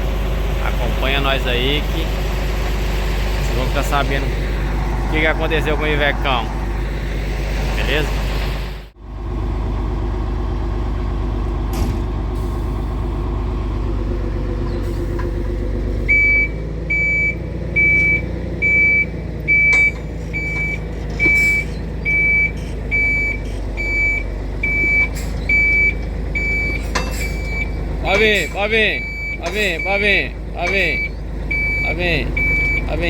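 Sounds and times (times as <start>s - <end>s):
diesel truck engine running: 0.0s - 33.0s
reversing alarm beeping: 16.0s - 33.0s.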